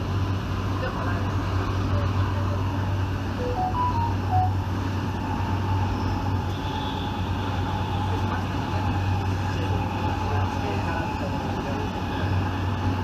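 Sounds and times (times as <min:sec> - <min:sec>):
train rumbling on track: 0:00.0 - 0:13.0
faint steady whine: 0:02.3 - 0:08.0
short high notes: 0:03.4 - 0:04.6.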